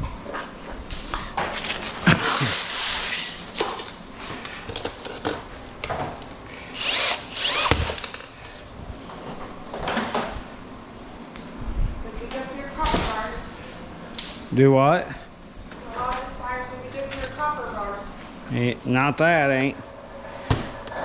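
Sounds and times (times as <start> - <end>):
handheld power tool bursts: 6.6 - 8.3.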